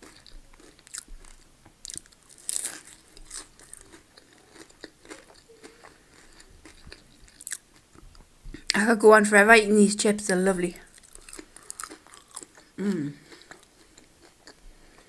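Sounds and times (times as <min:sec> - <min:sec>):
chewing crunchy fries: 0:00.0 - 0:08.8, 0:10.8 - 0:15.0.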